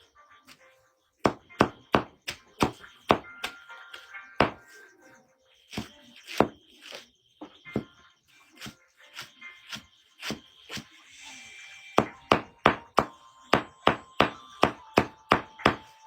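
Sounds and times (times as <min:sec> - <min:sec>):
faint background music: 0:00.0 - 0:16.0
blade chopping wood: 0:01.2 - 0:04.7, 0:05.7 - 0:08.0, 0:08.6 - 0:10.9, 0:12.0 - 0:15.9.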